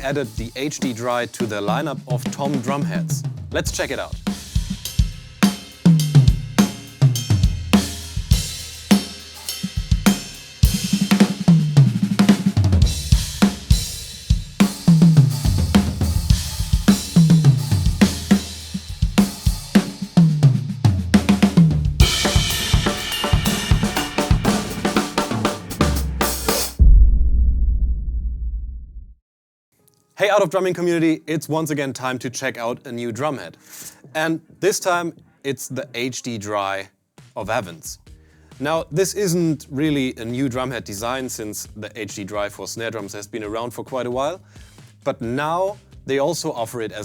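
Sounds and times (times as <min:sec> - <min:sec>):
drum kit groove: 0:00.0 - 0:26.8, 0:37.2 - 0:47.0
tom fills: 0:00.0 - 0:28.8
cymbals washing: 0:03.8 - 0:20.4, 0:21.4 - 0:26.8.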